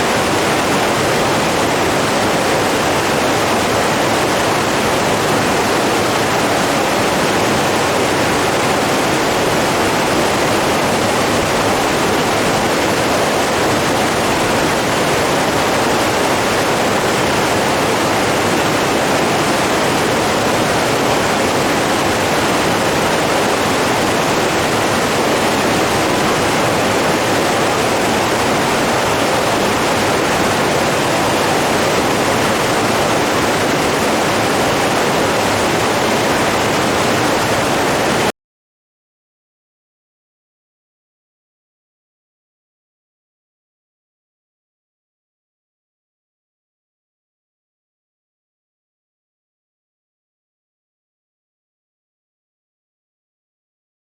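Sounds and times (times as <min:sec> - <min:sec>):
flowing water rushing: 0:00.0 - 0:38.3.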